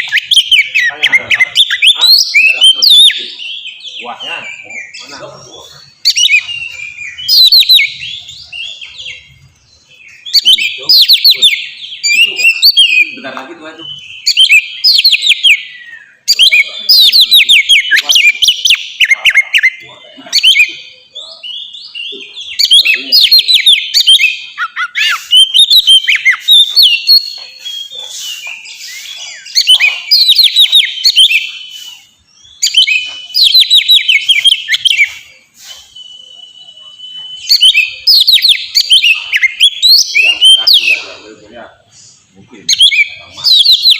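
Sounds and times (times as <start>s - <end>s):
songbird chattering and whistling: 0.0s - 43.9s
long steady bird whistle: 20.4s - 41.6s.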